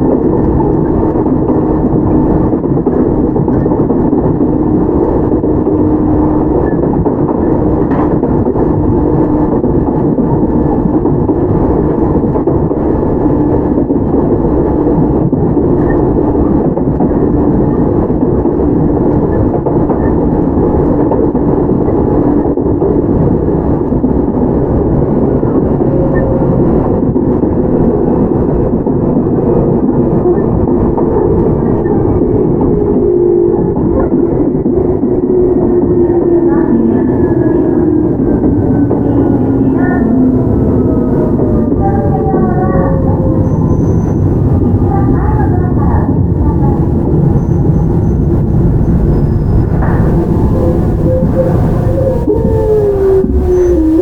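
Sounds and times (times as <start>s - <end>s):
train wheels rumbling on rail: 0.0s - 54.0s
traction equipment tone: 24.3s - 54.0s.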